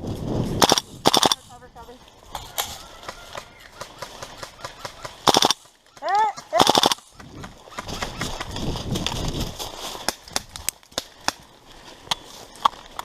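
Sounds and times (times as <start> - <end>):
airsoft gun shots: 0.6 - 1.5, 4.1 - 5.6, 6.5 - 7.1.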